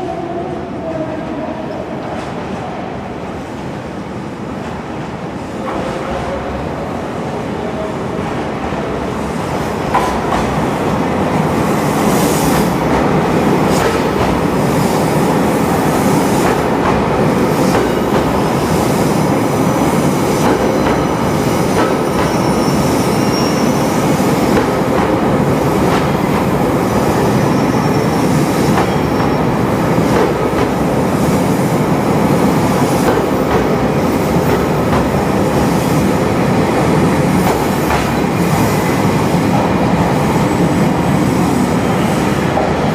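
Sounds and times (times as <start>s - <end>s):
train wheels rumbling on rails: 0.9s - 42.9s
rail joint clicks: 16.4s - 17.1s, 17.7s - 18.4s, 20.4s - 21.2s, 21.8s - 22.5s, 30.1s - 30.8s, 37.4s - 38.3s
faint high wheel squeal: 22.2s - 23.8s.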